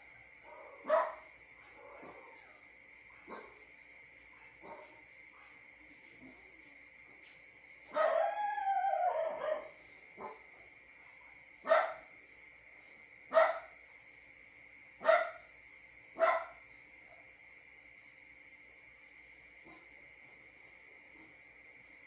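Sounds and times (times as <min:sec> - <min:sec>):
dog barking: 0:00.4 - 0:03.7, 0:04.4 - 0:05.6, 0:07.9 - 0:08.4, 0:09.1 - 0:10.5, 0:11.6 - 0:12.1, 0:13.3 - 0:13.8, 0:15.0 - 0:15.5, 0:16.2 - 0:16.6, 0:19.6 - 0:20.0.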